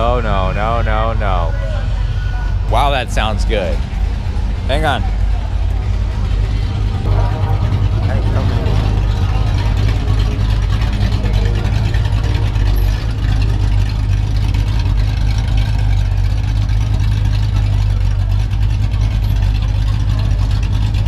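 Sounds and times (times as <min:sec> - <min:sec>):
car engine with deep exhaust rumble: 0:00.0 - 0:21.0.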